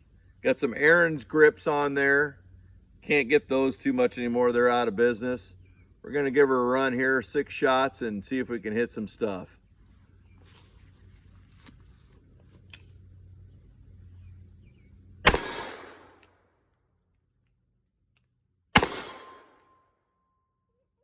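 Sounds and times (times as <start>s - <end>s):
revolver shots with echo: 15.3s - 16.1s, 18.8s - 19.6s.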